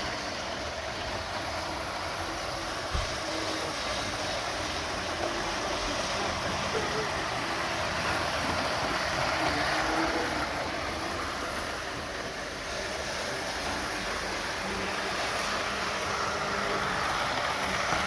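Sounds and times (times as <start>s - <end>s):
model trains rumbling on track: 0.0s - 18.0s.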